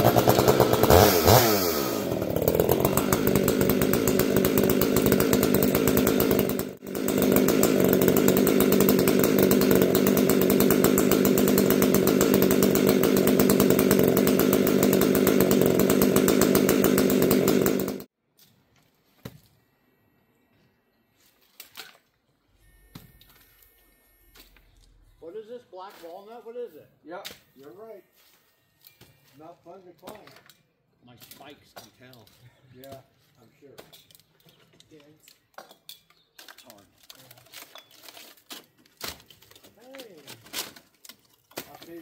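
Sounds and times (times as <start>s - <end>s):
chainsaw running: 0.0s - 18.1s.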